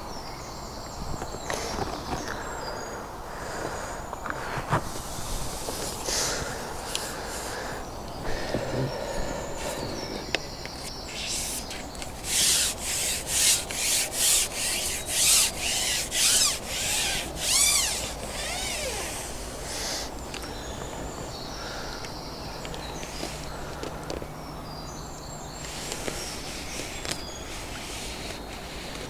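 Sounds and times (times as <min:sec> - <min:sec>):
low steady background noise: 0:00.0 - 0:29.0
short rubbing strokes: 0:10.8 - 0:20.1.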